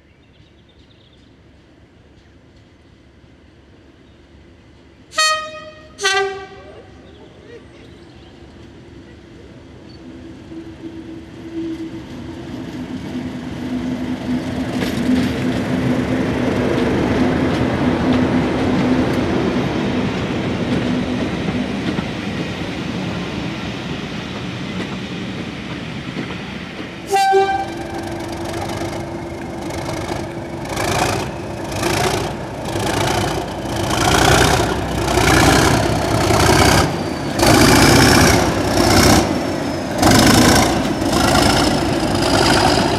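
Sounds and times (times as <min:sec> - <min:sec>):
diesel locomotive passing: 0:00.0 - 0:42.9
two-note train horn: 0:05.1 - 0:06.8, 0:27.1 - 0:28.0.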